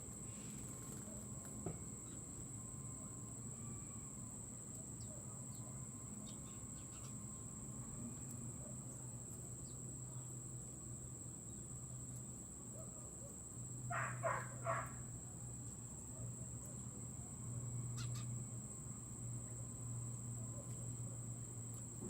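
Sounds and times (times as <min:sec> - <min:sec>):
high insect drone: 0:00.0 - 0:22.0
faint chirps: 0:00.3 - 0:10.4, 0:17.8 - 0:18.5
bird harsh calls: 0:13.9 - 0:15.0, 0:18.0 - 0:18.3.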